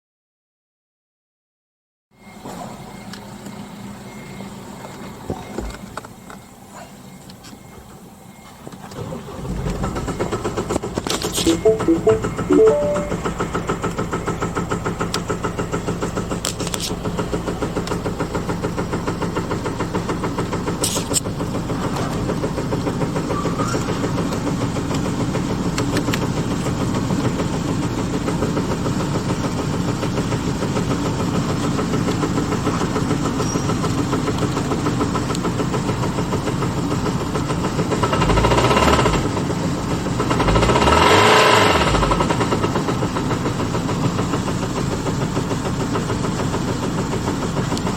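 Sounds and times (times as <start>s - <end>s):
diesel car engine idling: 13.3s - 38.4s, 42.1s - 47.9s
car engine revving: 40.2s - 42.5s.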